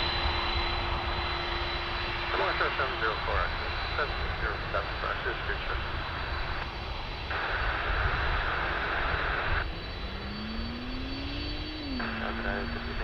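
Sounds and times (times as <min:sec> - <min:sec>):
jet engines rumbling: 0:00.0 - 0:13.0
rising engine whine: 0:00.0 - 0:13.0
radio hiss: 0:02.2 - 0:06.6, 0:07.2 - 0:09.7, 0:11.6 - 0:13.0.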